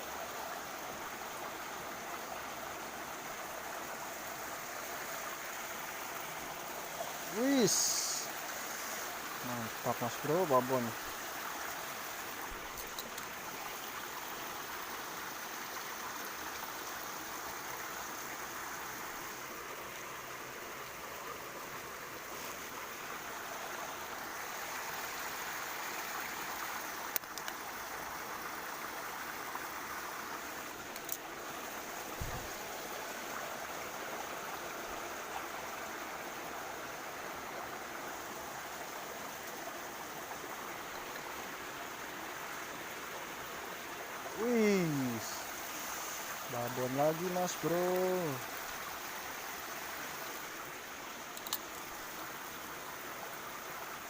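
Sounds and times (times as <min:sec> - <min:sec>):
stream rushing: 0:00.0 - 0:54.0
faint clicks: 0:27.1 - 0:27.6, 0:51.3 - 0:51.9
brief low thump: 0:32.2 - 0:32.5.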